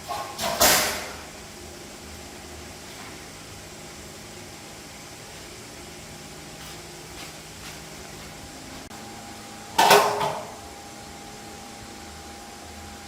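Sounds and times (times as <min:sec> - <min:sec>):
metal clank: 0:00.0 - 0:01.2
steady hiss: 0:00.0 - 0:09.0.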